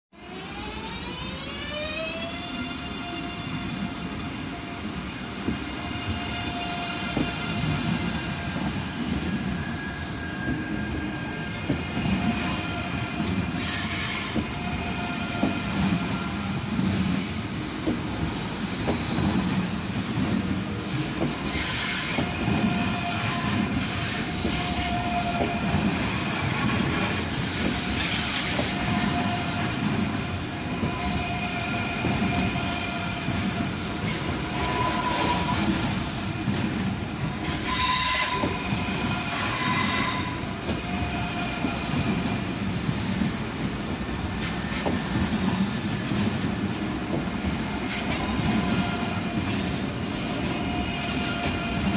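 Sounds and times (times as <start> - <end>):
train wheels rumbling: 0.3 - 51.9.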